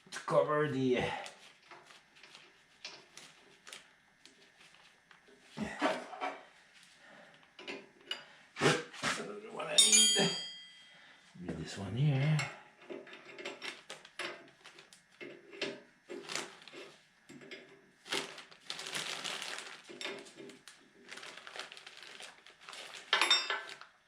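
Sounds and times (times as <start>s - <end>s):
rustling: 1.2s - 5.6s, 16.1s - 17.0s, 18.0s - 24.0s
objects clattering: 12.8s - 24.0s.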